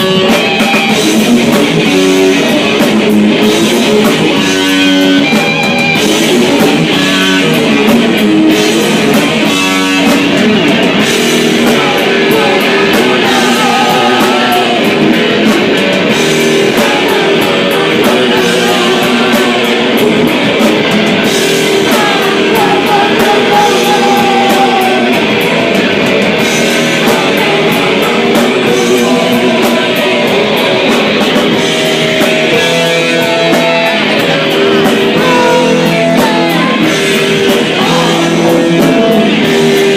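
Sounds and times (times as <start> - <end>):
drum kit: 0.0 - 39.9
guitar: 0.0 - 39.9
person singing: 11.5 - 20.6, 21.6 - 25.5, 26.8 - 31.5, 32.5 - 39.5.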